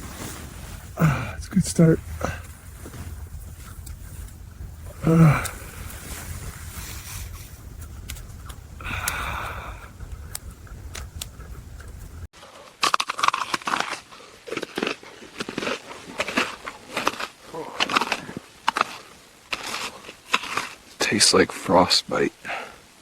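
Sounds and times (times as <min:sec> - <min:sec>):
low wind rumble: 0:00.0 - 0:12.3
loud crunching: 0:00.0 - 0:20.8
faint scrapes and clicks: 0:05.4 - 0:09.3.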